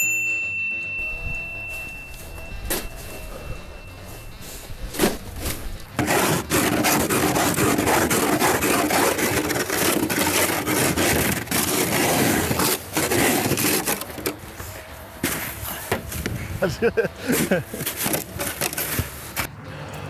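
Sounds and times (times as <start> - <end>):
rough scraping: 4.4 - 19.5.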